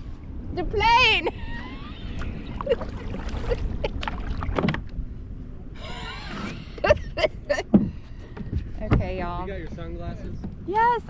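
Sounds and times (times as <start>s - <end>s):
steady low rumble: 0.0s - 11.0s
paddle knocks and splashes: 2.7s - 4.9s.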